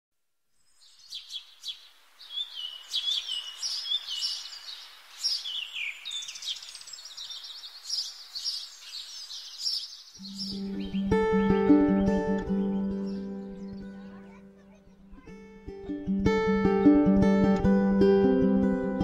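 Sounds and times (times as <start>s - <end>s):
soft outdoor hiss: 0.2s - 15.8s
songbirds chirping and trilling: 0.6s - 15.2s.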